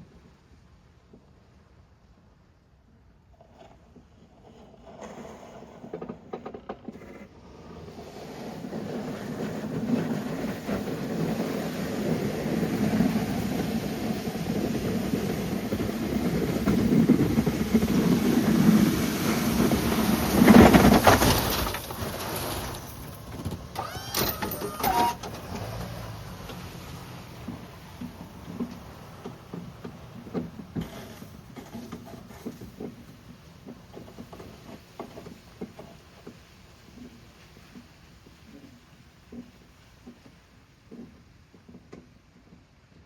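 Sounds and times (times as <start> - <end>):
vehicle engine pushing snow: 7.0 - 38.9
short squeaks: 23.7 - 26.0.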